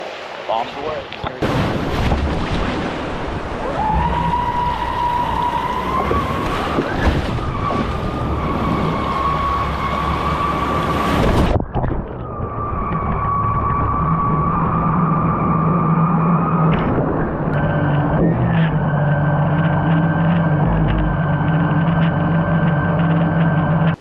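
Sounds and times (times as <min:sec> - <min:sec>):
surf: 0:00.0 - 0:24.0
wind buffeting microphone: 0:01.4 - 0:18.4.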